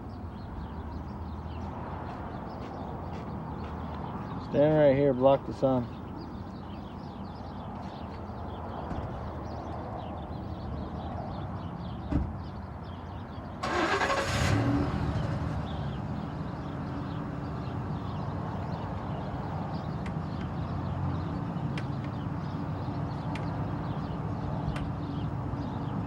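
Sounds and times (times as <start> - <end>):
engine running: 13.6 - 18.0.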